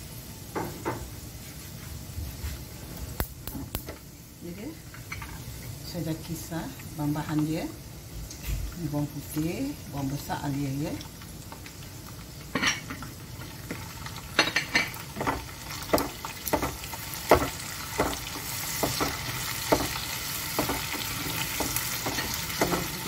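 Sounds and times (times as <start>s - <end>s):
paste sizzling in hot oil: 9.3s - 23.0s
spatula knocking and scraping pan: 14.4s - 23.0s.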